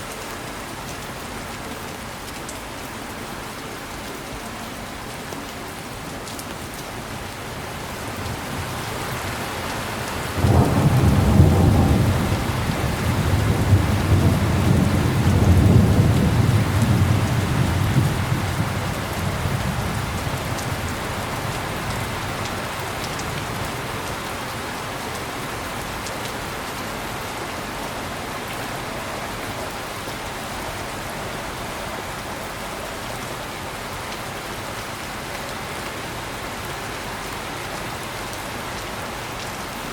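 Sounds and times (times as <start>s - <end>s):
heavy rain: 0.0s - 39.9s
thunder rumbling: 10.3s - 20.9s.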